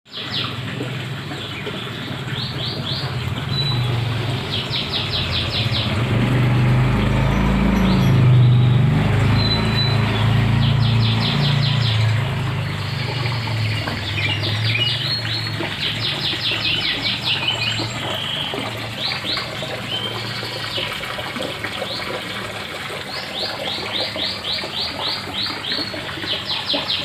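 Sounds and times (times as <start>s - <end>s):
pump humming: 0.1s - 27.0s
water rushing and splashing: 0.1s - 27.0s
bird chirping: 7.2s - 20.9s.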